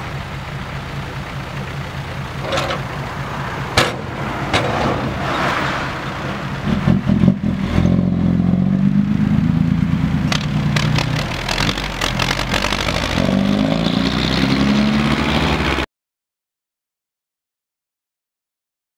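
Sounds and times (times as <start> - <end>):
diesel truck engine revving: 0.0 - 15.9
metal clanks: 2.4 - 3.0, 3.7 - 5.2.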